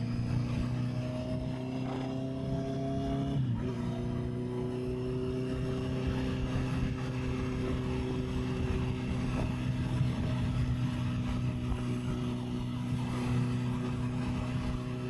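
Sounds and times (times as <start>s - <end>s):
motorcycle engine running: 0.0s - 15.0s
wind buffeting microphone: 5.5s - 15.0s.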